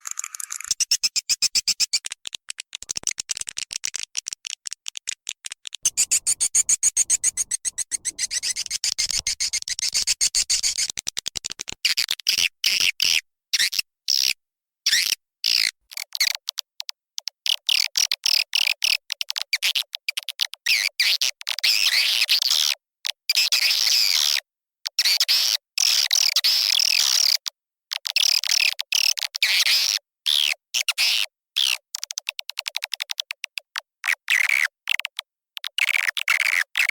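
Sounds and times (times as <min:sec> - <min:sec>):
twittering bird chirps: 0:00.0 - 0:02.1, 0:05.8 - 0:10.9.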